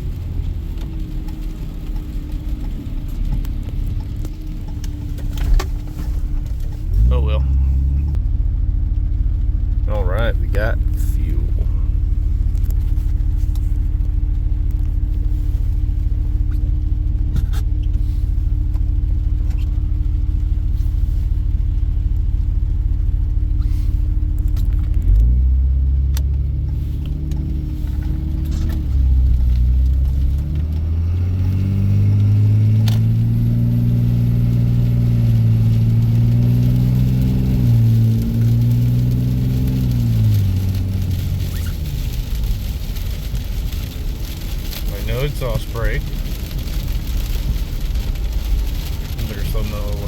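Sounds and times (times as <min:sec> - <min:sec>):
diesel truck engine: 0:00.0 - 0:50.0.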